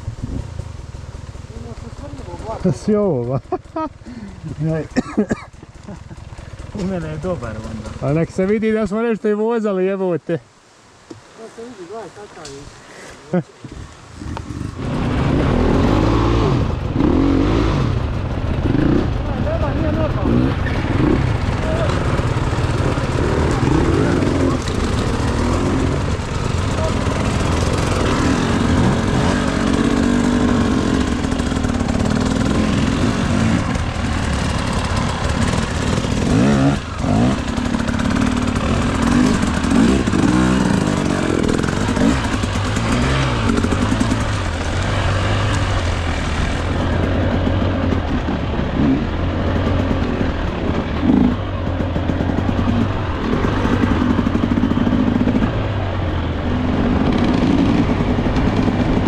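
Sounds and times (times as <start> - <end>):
dirt bike engine revving: 14.2 - 59.0.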